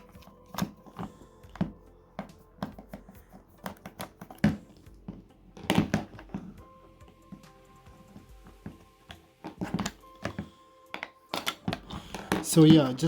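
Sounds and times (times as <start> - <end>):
plastic clicks and taps: 0.1 - 6.4.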